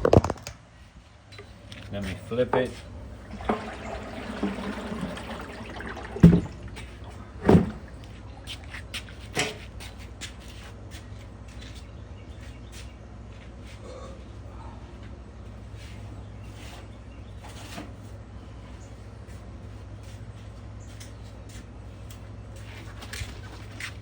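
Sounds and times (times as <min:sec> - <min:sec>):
heavy thuds: 0:06.2 - 0:08.0.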